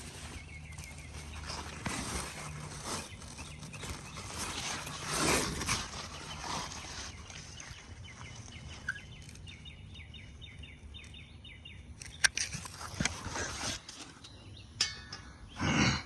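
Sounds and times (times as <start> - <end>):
sharp clicks and rustles: 0.0 - 11.2, 12.0 - 15.2
bird chirping: 0.0 - 12.7.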